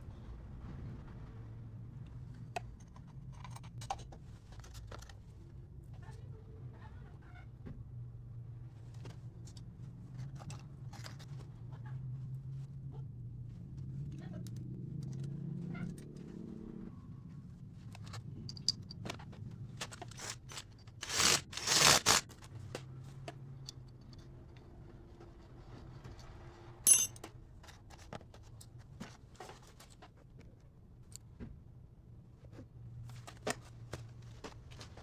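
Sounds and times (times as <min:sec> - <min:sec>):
tools clicking and scraping: 0:19.8 - 0:22.3, 0:26.9 - 0:28.0
sharp metallic clink: 0:26.9 - 0:27.2.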